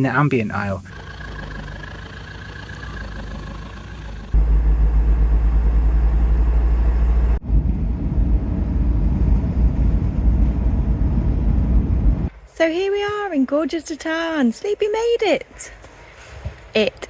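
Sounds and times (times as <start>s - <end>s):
moving vehicle rumble: 0.8s - 12.4s.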